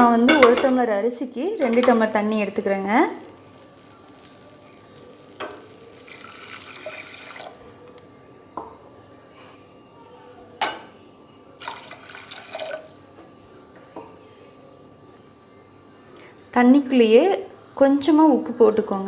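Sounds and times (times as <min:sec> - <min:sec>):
water pouring into pot: 0:02.7 - 0:08.0, 0:11.6 - 0:13.2.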